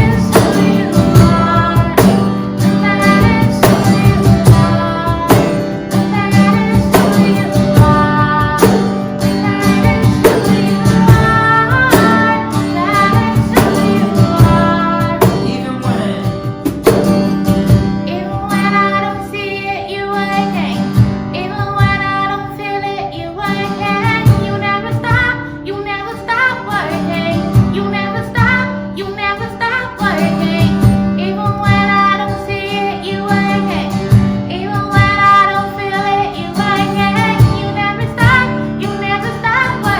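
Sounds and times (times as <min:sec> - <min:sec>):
steady drum beat: 0:00.0 - 0:12.4, 0:13.0 - 0:18.0
woman singing lead vocal: 0:00.0 - 0:17.0, 0:17.8 - 0:39.9
guitar: 0:00.0 - 0:39.9.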